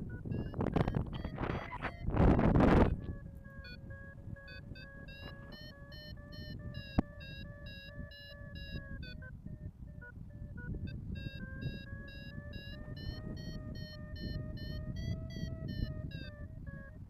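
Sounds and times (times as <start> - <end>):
variometer beeping: 0.0 - 16.9
low wind rumble: 0.0 - 17.0
wind noise on microphone: 0.0 - 17.0.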